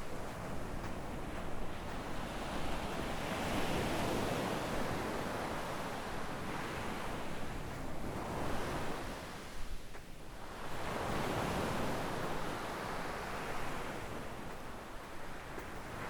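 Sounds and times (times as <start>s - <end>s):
waves washing up sandy shore: 10.3s - 16.0s.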